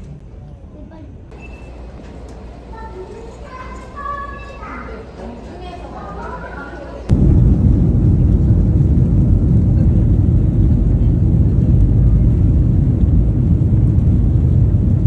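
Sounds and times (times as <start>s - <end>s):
loud low rumble: 7.1s - 15.0s.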